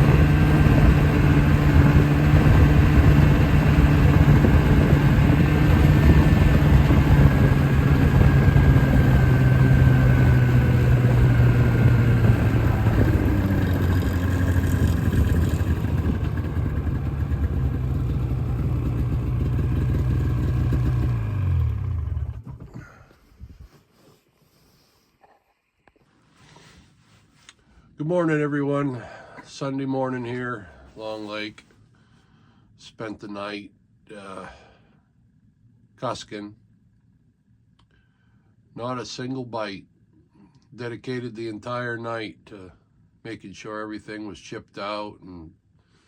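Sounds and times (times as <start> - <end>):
vehicle engine running: 0.0 - 23.0
engine winding down: 0.0 - 23.1.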